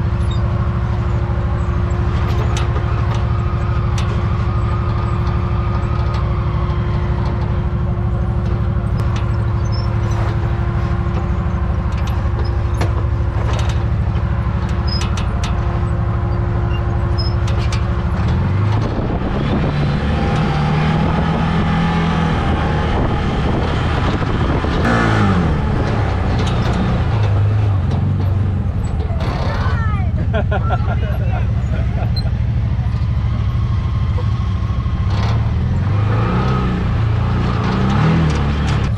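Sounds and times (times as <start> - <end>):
utility vehicle engine running: 0.0 - 38.9
clicks and knocks: 0.2 - 21.7, 25.6 - 30.2.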